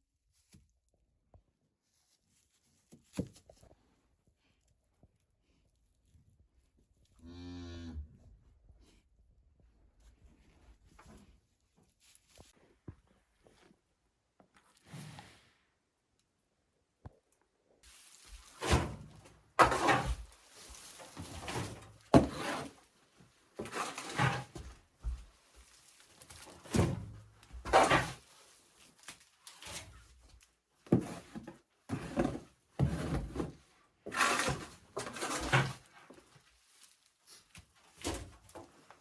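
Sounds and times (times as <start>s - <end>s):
knocks thuds and scrapes: 17.9s - 22.8s, 23.6s - 25.3s, 26.2s - 28.3s, 30.8s - 36.3s.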